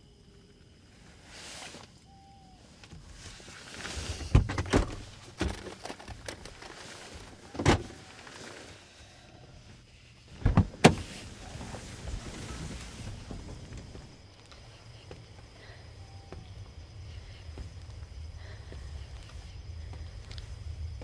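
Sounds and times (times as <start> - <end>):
faint low rumble: 8.7 - 21.0.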